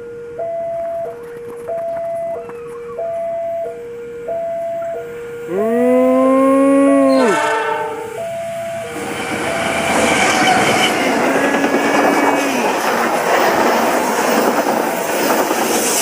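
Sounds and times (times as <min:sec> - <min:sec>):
level crossing alarm beeping: 0:00.0 - 0:11.2
train horn: 0:05.4 - 0:08.2, 0:09.5 - 0:11.4
train rumble and wheel clatter: 0:07.4 - 0:16.0.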